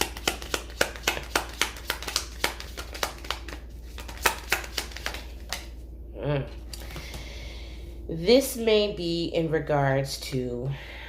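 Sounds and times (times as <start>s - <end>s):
cards being shuffled: 0.0s - 5.8s.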